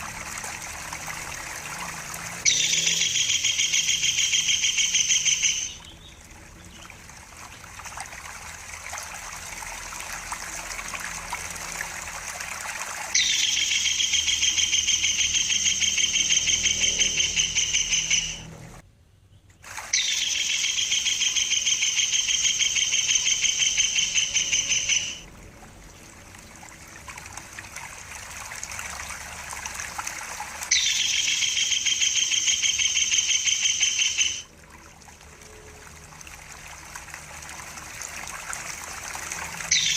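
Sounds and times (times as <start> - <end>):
kingfisher rattling trills: 0.0 - 8.0, 8.6 - 18.5, 19.8 - 25.2, 29.0 - 34.5, 38.8 - 39.9
running water trickling: 0.0 - 18.8, 19.5 - 39.9.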